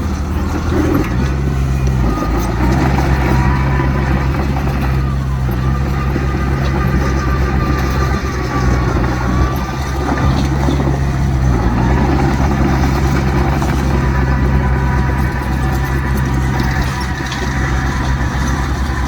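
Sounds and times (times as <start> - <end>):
heavy diesel engine droning: 0.0 - 19.0.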